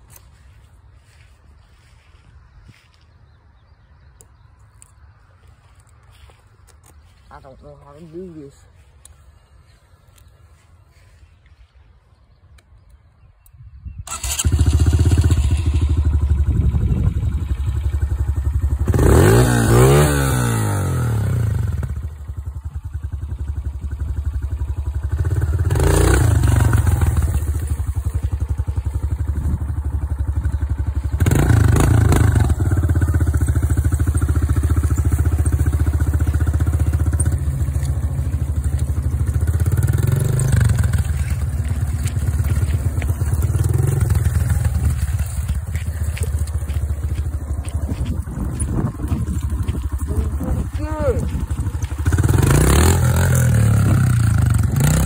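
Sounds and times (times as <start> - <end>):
dirt bike engine revving: 14.1 - 55.0.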